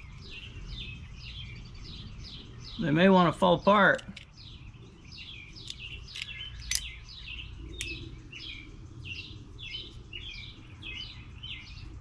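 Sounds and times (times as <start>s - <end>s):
small bird chirping: 0.0s - 12.0s
sharp clicks: 5.6s - 7.0s.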